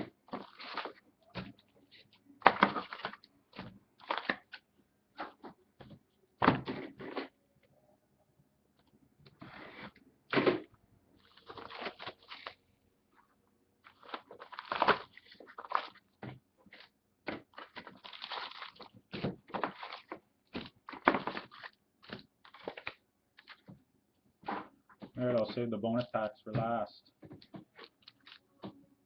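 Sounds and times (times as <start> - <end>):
wrappers crinkling and tearing: 0.3 - 1.0, 11.2 - 12.6, 13.8 - 16.0, 17.5 - 23.6, 27.8 - 28.4.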